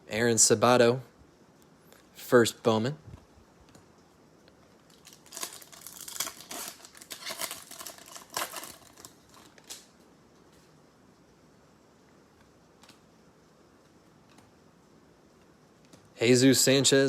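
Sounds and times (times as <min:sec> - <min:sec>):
plastic wrapper tearing and crinkling: 0:04.8 - 0:09.9.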